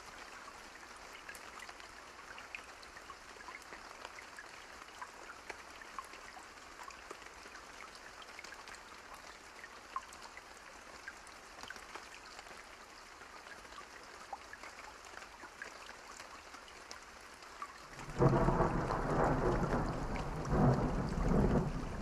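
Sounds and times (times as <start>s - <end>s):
steady rain: 0.0s - 22.0s
thunder rumbling: 18.0s - 22.0s.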